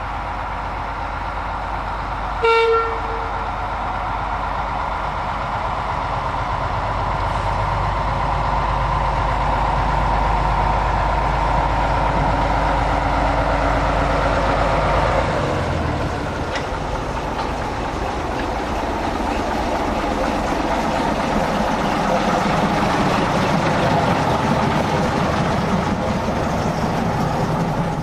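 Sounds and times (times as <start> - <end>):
diesel engine running: 3.4 - 28.0.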